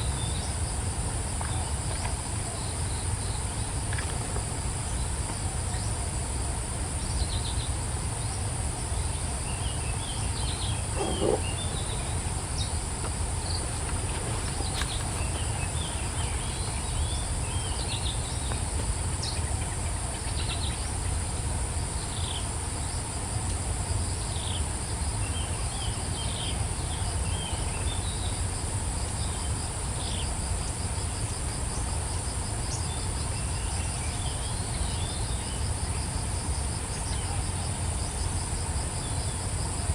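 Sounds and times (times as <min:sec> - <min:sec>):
insects droning: 0:00.0 - 0:39.9
small birds chirping: 0:09.5 - 0:18.6.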